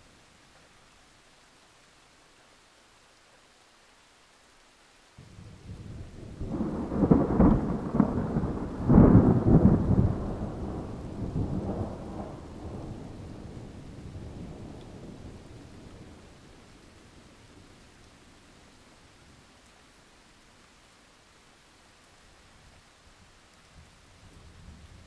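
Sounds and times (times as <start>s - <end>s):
rain hissing: 0.0s - 25.0s
thunder cracks and rumble: 5.7s - 15.3s.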